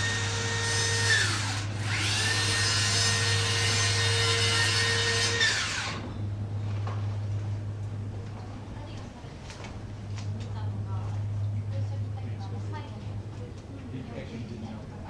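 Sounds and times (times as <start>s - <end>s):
small electric motor whine: 0.0s - 6.2s.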